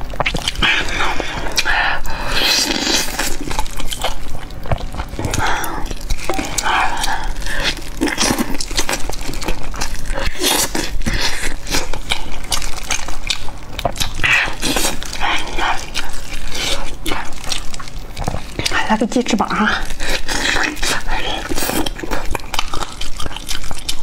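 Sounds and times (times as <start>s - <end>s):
tearing meat by hand: 0.0s - 18.8s
wet chewing and lip-smacking: 0.0s - 24.0s.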